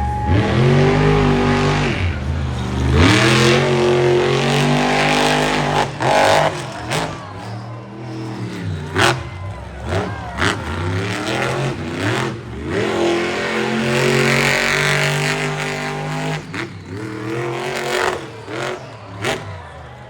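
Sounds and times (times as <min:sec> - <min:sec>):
truck engines revving: 0:00.0 - 0:20.0.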